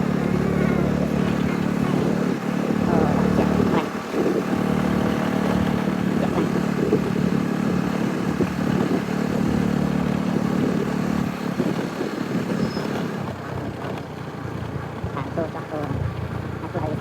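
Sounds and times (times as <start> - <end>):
small engine humming: 0.0 - 17.0.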